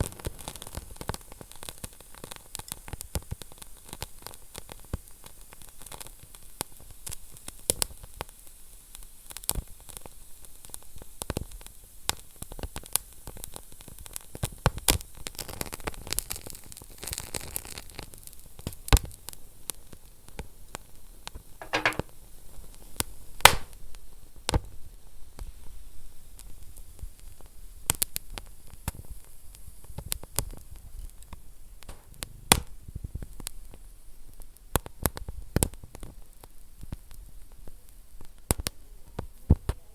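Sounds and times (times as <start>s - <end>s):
wood fire crackling and popping: 23.4s - 23.8s, 27.4s - 39.9s.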